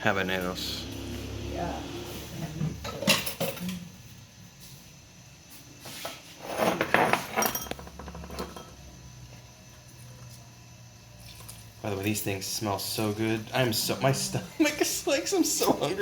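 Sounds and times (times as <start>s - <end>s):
utensils and dishes clinking: 2.6s - 3.9s, 6.5s - 8.9s.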